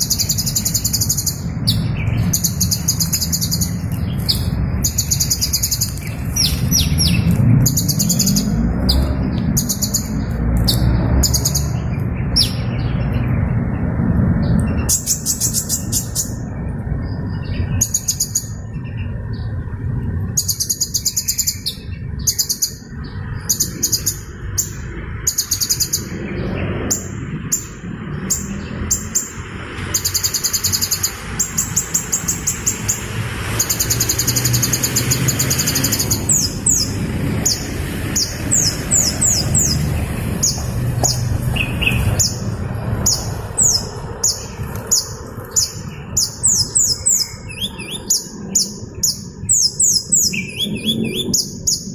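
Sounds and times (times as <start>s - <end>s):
hummingbird chattering trills: 0.0s - 12.8s, 14.7s - 16.5s, 17.3s - 19.4s, 20.3s - 51.9s
hummingbird sharp chirps: 0.0s - 12.8s, 26.9s - 51.9s.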